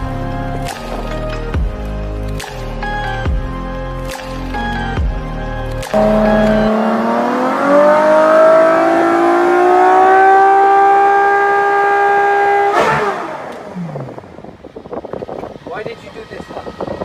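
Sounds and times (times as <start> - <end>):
car engine revving: 5.8 - 14.5.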